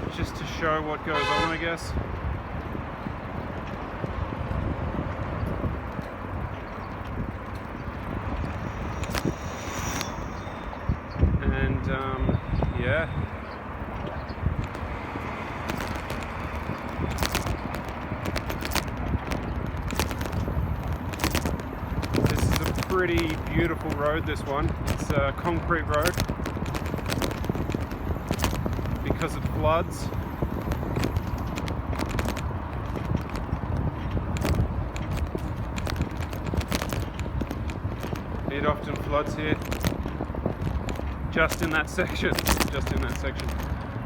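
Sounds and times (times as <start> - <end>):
wind and tyres rumbling: 0.0 - 44.0
bicycle clicks and rattles: 14.0 - 44.0.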